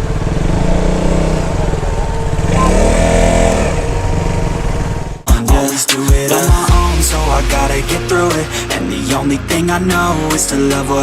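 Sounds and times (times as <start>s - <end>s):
motorcycle engine riding off: 0.0s - 5.3s.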